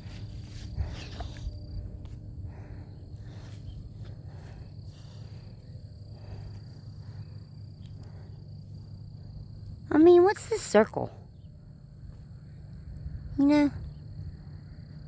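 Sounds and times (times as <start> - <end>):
low rumble: 0.0 - 9.9
faint high insect trill: 0.0 - 15.0.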